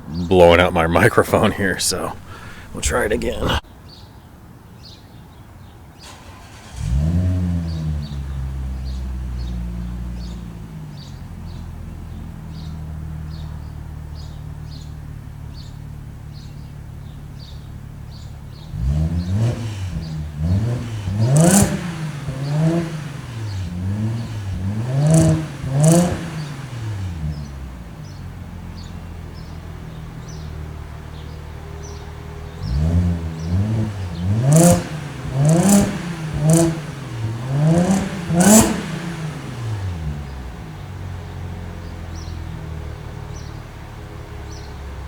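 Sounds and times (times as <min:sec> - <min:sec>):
exhaust cracks: 0:18.8 - 0:27.4, 0:32.6 - 0:40.2
car engine idling: 0:20.0 - 0:45.0
engine throttle blips: 0:32.6 - 0:40.4.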